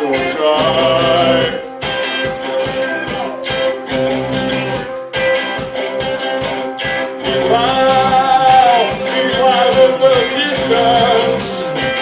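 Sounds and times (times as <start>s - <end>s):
electric guitar chord: 0.0s - 12.0s
live rock band playing: 0.0s - 12.0s
drum beat: 0.2s - 12.0s.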